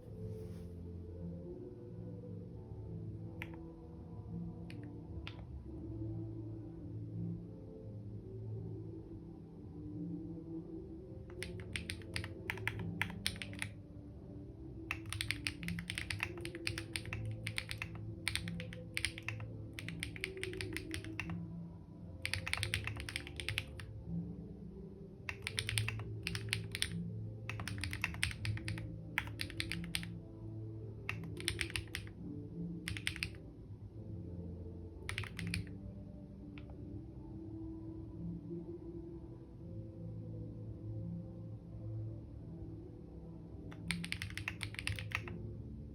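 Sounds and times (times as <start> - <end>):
soft ambient music: 0.0 - 45.9
keyboard typing: 3.4 - 3.6, 4.7 - 5.5, 11.3 - 13.8, 14.9 - 21.4, 22.2 - 24.0, 25.3 - 30.2, 31.1 - 32.2, 32.8 - 33.4, 35.0 - 35.8, 43.7 - 45.4.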